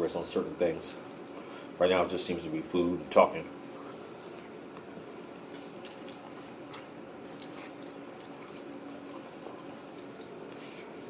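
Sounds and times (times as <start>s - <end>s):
low room hum: 0.0s - 11.0s
chewing food: 1.0s - 1.8s, 3.6s - 11.0s.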